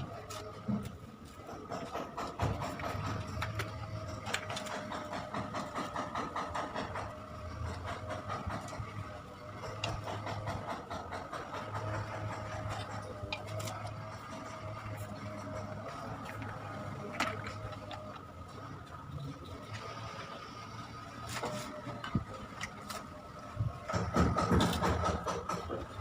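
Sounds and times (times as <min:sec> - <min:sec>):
rapid mechanical clicking: 0:00.1 - 0:26.0.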